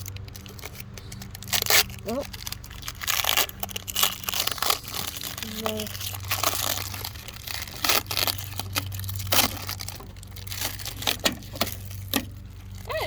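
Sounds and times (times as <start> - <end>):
tape peeling and tearing: 0.0 - 13.0.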